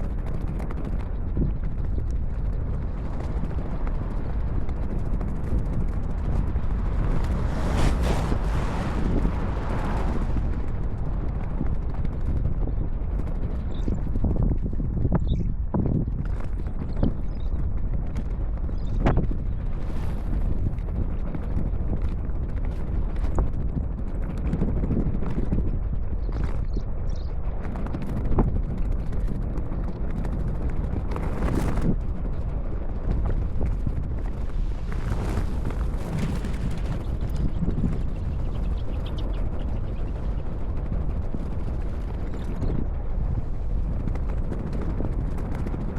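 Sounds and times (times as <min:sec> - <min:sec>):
wind buffeting microphone: 0:00.0 - 0:45.9
skate wheels rolling on pavement: 0:00.3 - 0:13.6, 0:28.1 - 0:45.9.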